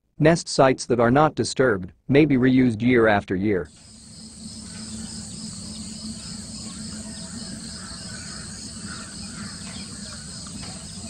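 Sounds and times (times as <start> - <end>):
faint bird chirps: 3.7 - 11.0
insect chirring: 3.7 - 11.0
low steady hum: 3.7 - 11.0.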